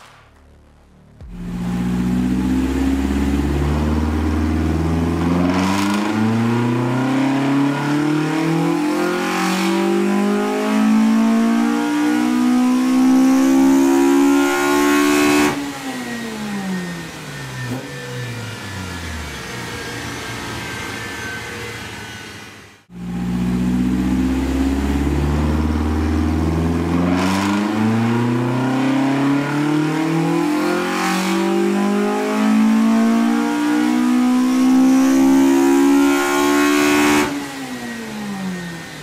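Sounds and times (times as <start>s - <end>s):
engine revving at full throttle: 1.2s - 20.4s, 22.9s - 39.0s.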